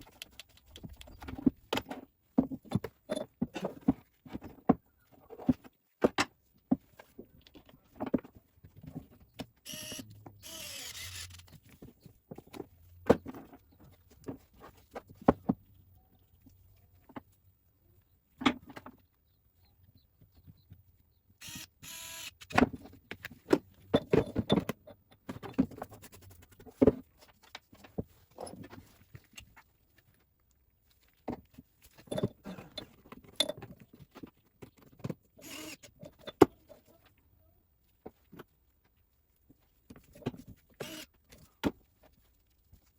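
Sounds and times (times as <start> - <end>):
clicks and knocks of parts: 21.4 - 25.8.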